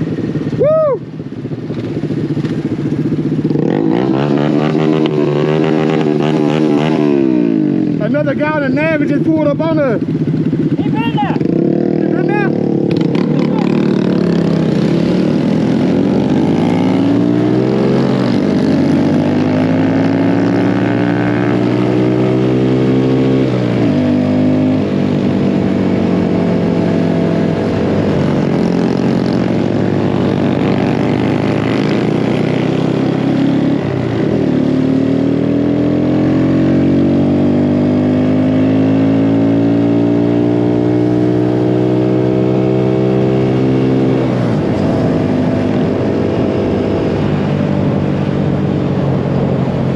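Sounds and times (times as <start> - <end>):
mini bike engine revving: 10.5 - 25.0.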